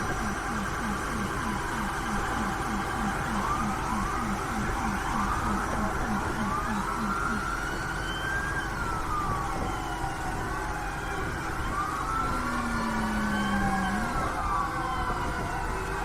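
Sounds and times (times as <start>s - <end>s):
long low tone: 0.0s - 7.7s
low fast-pulsing tone: 0.0s - 7.7s
emergency sirens wailing: 0.0s - 16.0s
low engine rumble: 0.0s - 16.0s.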